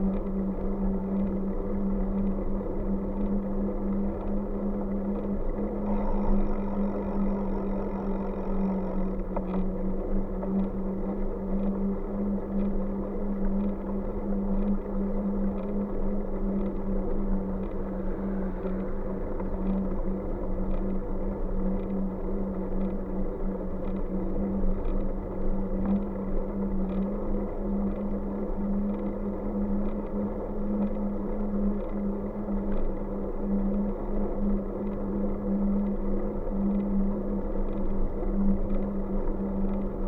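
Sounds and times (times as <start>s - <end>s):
bike engine drone: 5.6s - 10.4s.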